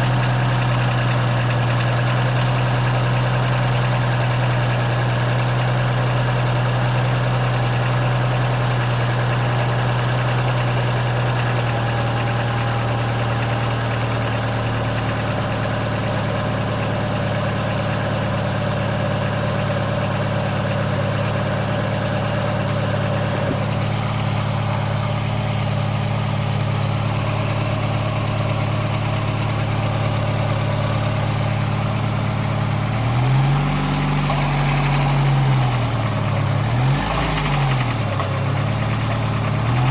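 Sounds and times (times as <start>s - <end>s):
car engine idling: 0.0s - 39.9s
engine revving: 22.5s - 39.9s.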